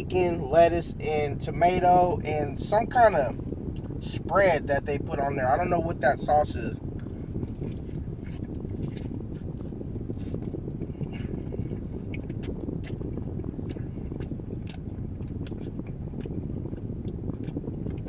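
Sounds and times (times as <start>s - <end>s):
air blowing on microphone: 0.0s - 18.0s
person chewing: 7.4s - 10.5s, 12.1s - 13.0s, 13.7s - 16.4s.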